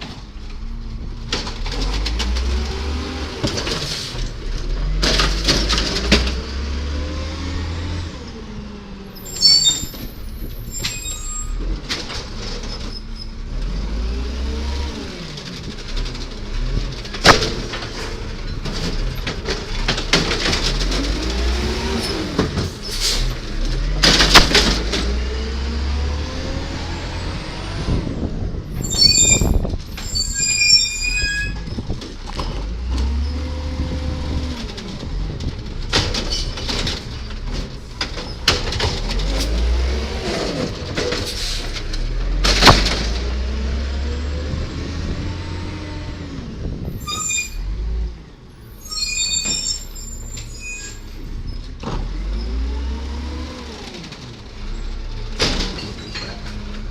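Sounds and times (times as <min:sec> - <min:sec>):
garbage truck diesel engine revving: 0:00.6 - 0:09.1, 0:13.3 - 0:29.9, 0:31.5 - 0:46.9, 0:51.3 - 0:56.9
high squeal: 0:09.2 - 0:11.6, 0:28.8 - 0:31.8, 0:47.0 - 0:47.7, 0:48.7 - 0:51.2.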